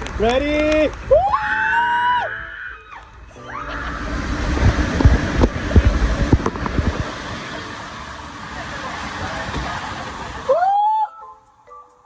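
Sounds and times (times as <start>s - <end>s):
rushing water and wind: 3.7s - 10.6s.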